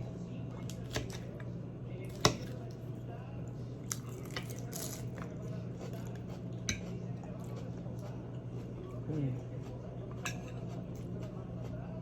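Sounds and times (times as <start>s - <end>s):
low electrical hum: 0.0s - 12.0s
wet chewing and mouth sounds: 3.8s - 11.9s.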